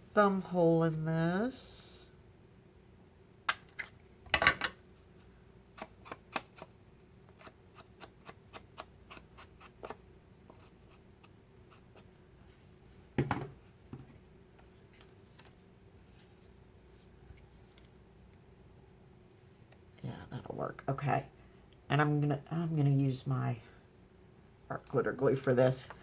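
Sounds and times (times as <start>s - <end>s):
paper rustling: 14.6s - 17.9s.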